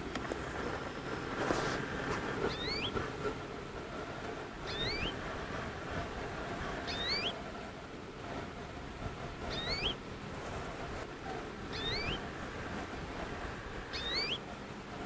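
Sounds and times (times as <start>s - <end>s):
low background noise: 0.0s - 15.0s
bird whistling two-note call: 6.9s - 7.3s, 14.0s - 14.4s.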